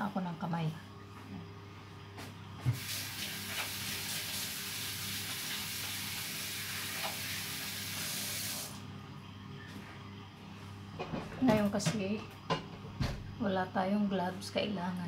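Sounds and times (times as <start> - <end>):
tap water running over hands: 2.7 - 8.7.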